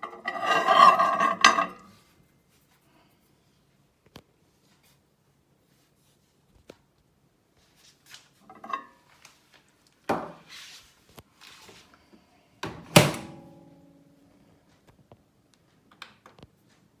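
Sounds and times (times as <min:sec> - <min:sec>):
oven door thunk with metallic ring: 0:12.6 - 0:13.6.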